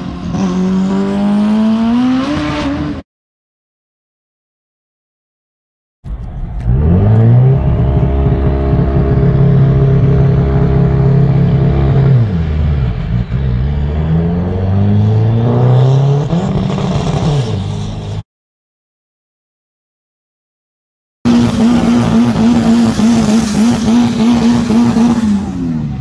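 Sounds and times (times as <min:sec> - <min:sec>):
car engine revving: 0:06.0 - 0:18.2, 0:21.3 - 0:26.0.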